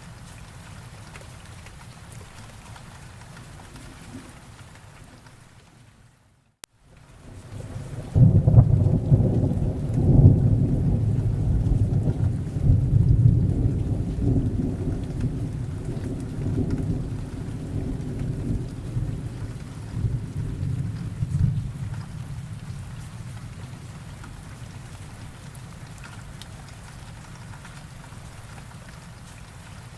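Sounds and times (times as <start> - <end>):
steady rain: 0.0 - 29.9
thunder rumbling: 7.3 - 25.5.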